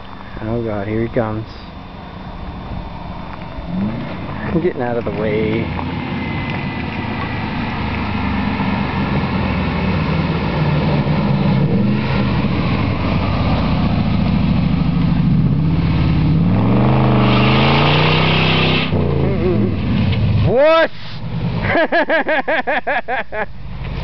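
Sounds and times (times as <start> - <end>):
truck engine revving: 1.7 - 22.7
loud hiss: 20.8 - 21.3.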